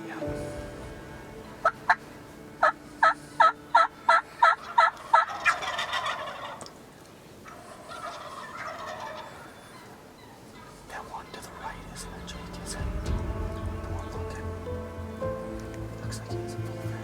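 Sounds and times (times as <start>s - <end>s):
turkey gobbling: 2.6s - 13.1s
turkey yelps: 4.1s - 6.8s, 7.4s - 12.5s.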